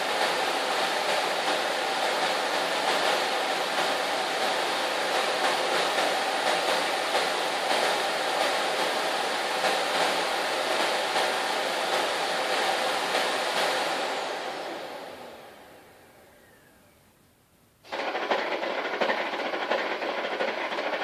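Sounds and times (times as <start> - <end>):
vacuum cleaner motor running: 0.0 - 17.1, 17.9 - 21.0
motor winding down whine: 12.7 - 17.2.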